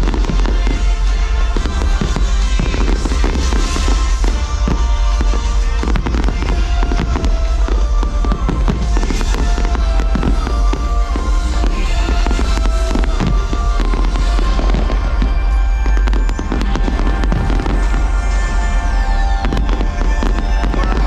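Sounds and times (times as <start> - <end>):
fireworks bangs and crackling: 0.0 - 21.0
sustained music soundtrack: 0.0 - 21.0.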